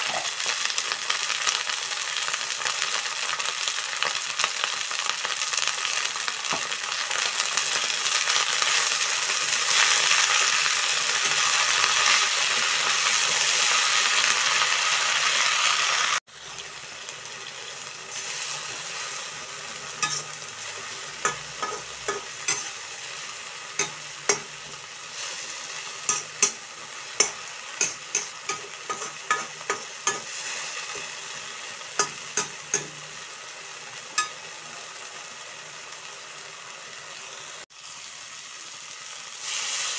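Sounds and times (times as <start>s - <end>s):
leaves sizzling in oil: 0.0s - 39.9s
metal skimmer scraping wok: 19.9s - 23.0s, 27.2s - 31.2s.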